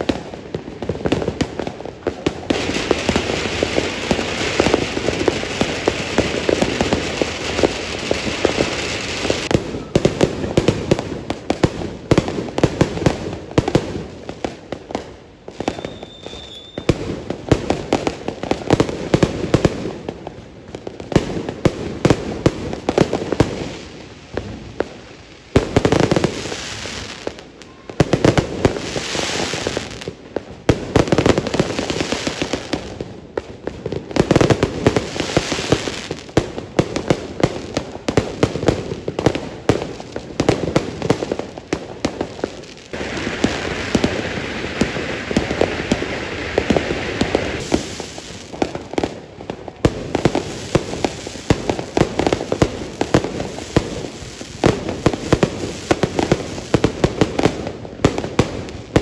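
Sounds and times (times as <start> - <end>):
fireworks bangs and pops: 0.0 - 59.0
fizzing firework bursts: 42.5 - 49.0.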